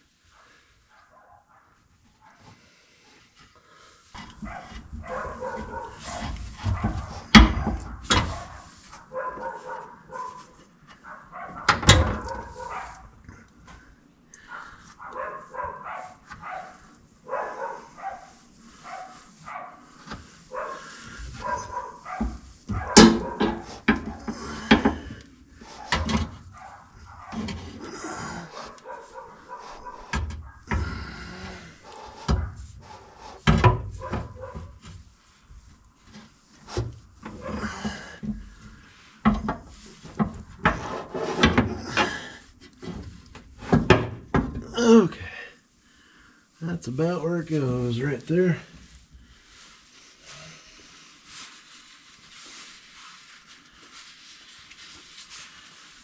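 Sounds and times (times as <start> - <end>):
knocks clicks and scrapes of hand work: 4.1 - 9.6, 10.5 - 13.8, 20.0 - 27.9, 30.1 - 44.8.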